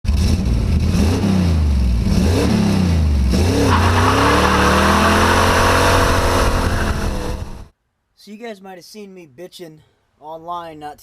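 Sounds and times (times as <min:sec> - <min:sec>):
vehicle engine revving: 0:00.1 - 0:07.7.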